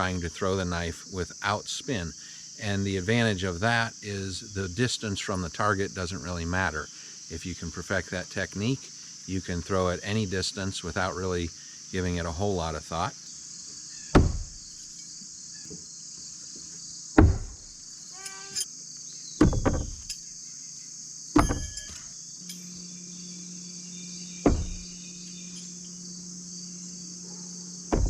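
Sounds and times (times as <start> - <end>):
crickets chirping: 0.0 - 28.0
knives thudding into wood: 14.1 - 14.6, 17.2 - 17.6, 19.4 - 20.2, 21.4 - 22.1, 24.4 - 24.9.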